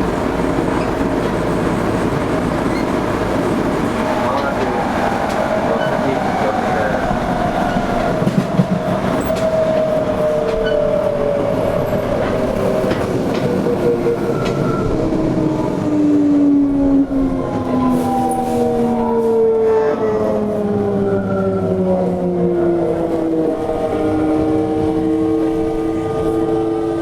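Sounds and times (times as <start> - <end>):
wheels rumbling on rail: 0.0 - 27.0
rail joint clicks: 0.1 - 15.1.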